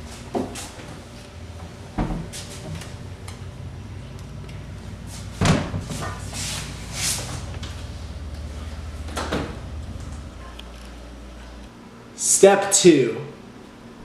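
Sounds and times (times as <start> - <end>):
cupboard doors opening and shutting: 1.9 - 3.0, 8.9 - 10.6.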